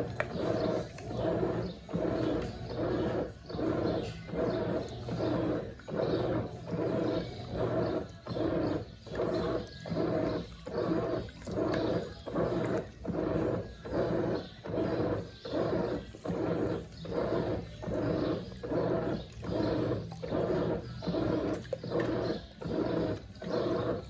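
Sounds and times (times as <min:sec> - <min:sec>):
washing machine churning: 0:00.0 - 0:24.0.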